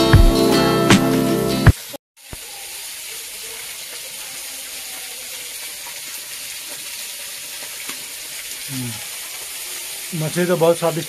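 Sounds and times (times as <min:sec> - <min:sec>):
background music: 0:00.0 - 0:01.7
hot oil sizzling: 0:00.0 - 0:11.0.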